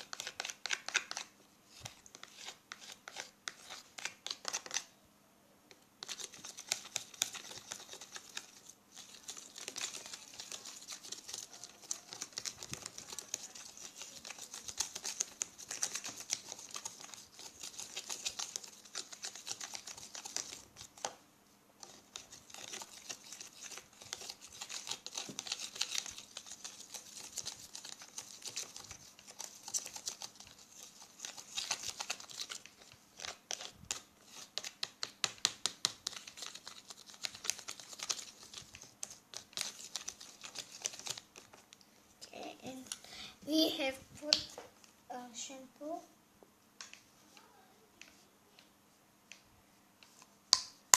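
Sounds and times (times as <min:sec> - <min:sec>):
stirring mixture in container: 0:00.0 - 0:04.9, 0:06.0 - 0:21.2, 0:21.8 - 0:41.8.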